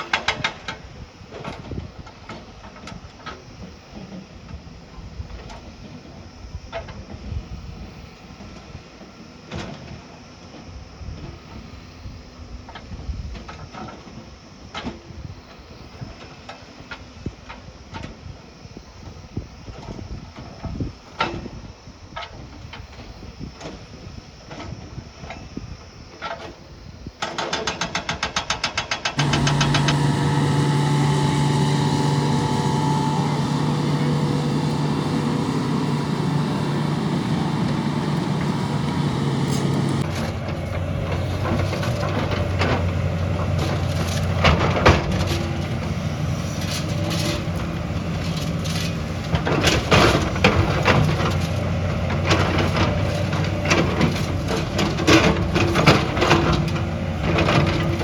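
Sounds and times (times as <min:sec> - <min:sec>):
heavy diesel engine: 0:29.2 - 0:58.0.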